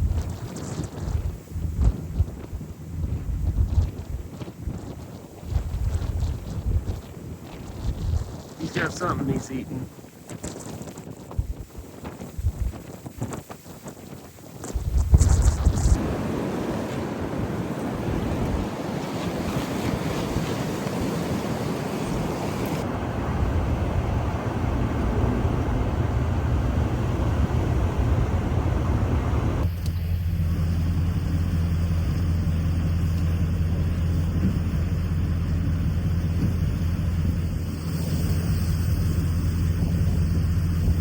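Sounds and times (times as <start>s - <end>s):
vehicle engine hum: 0.0s - 4.4s, 14.7s - 41.0s
wind blowing across microphone: 0.0s - 29.8s, 30.9s - 41.0s.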